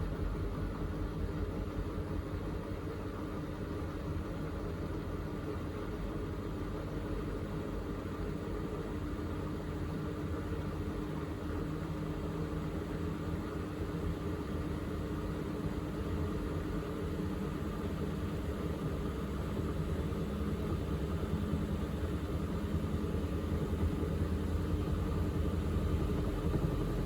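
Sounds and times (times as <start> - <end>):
washing machine spinning: 17.0 - 27.0.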